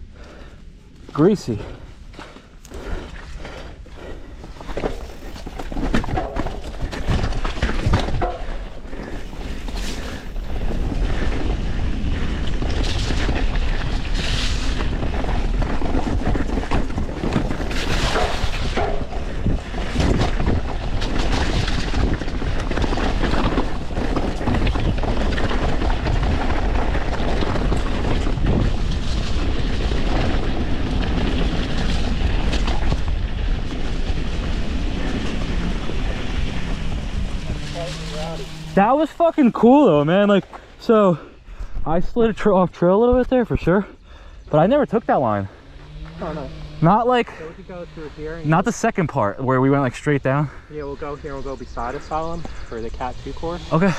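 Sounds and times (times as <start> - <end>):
tyres on dirt trail: 0.0 - 53.9
bike rattling: 0.1 - 53.9
wind buffeting microphone: 1.6 - 48.7
bike knocking over bumps: 4.6 - 9.8.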